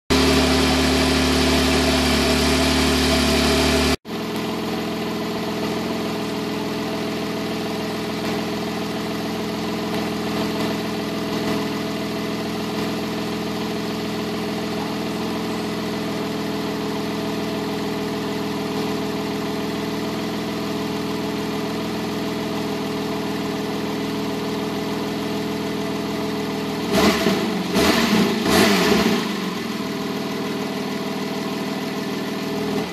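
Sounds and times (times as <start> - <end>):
car engine idling: 0.1 - 32.9.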